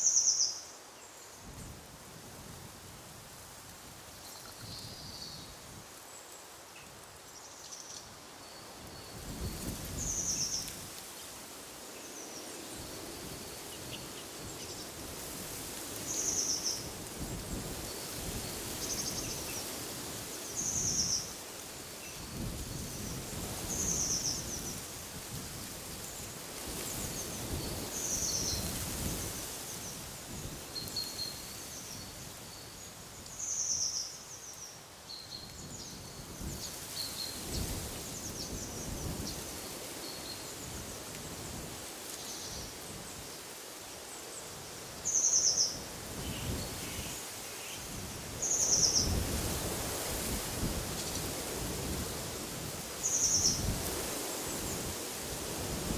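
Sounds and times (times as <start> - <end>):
wind gusting through trees: 0.0 - 55.9.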